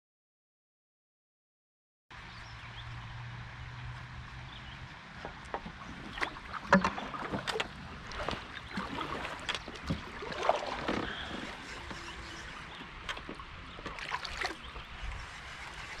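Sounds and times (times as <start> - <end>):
water splashing against hull: 5.2 - 16.0.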